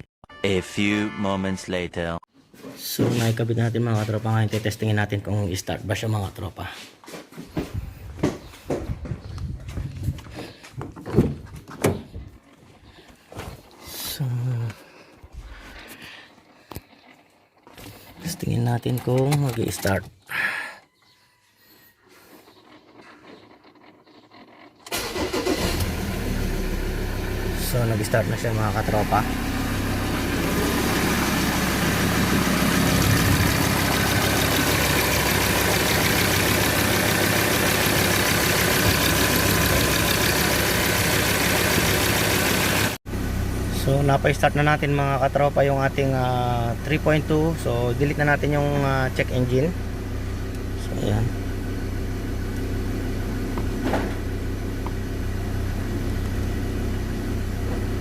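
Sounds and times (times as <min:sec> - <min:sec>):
diesel engine idling: 0:24.9 - 0:58.0.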